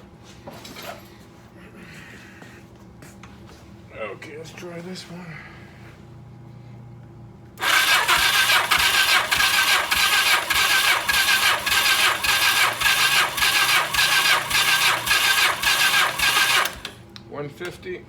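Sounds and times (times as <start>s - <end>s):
motorcycle engine cranking: 7.6s - 17.0s.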